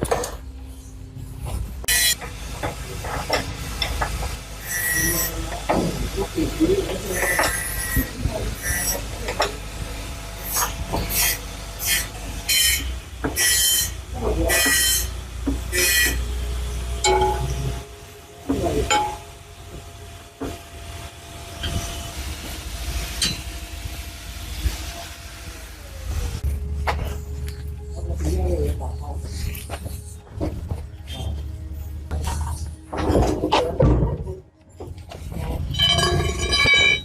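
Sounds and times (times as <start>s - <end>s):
low machine hum: 0.0s - 37.0s
metal scraping strokes: 0.7s - 5.5s, 10.4s - 19.4s.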